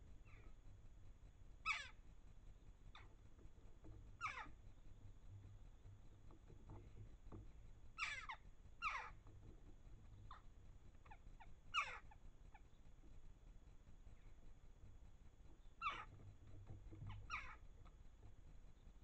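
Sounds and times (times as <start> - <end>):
birds calling with downward sweeps: 1.6 - 2.0, 4.2 - 4.6, 7.9 - 9.3, 10.1 - 12.9, 15.5 - 16.2, 17.0 - 17.9.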